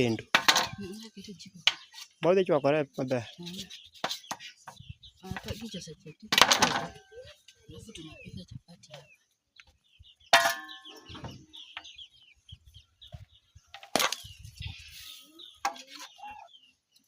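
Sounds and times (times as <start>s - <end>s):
chickens clucking: 0.0s - 17.0s
small birds chirping: 0.0s - 17.0s
metal cookware knocks: 0.3s - 0.9s, 10.4s - 10.8s
metallic clang: 10.4s - 11.3s.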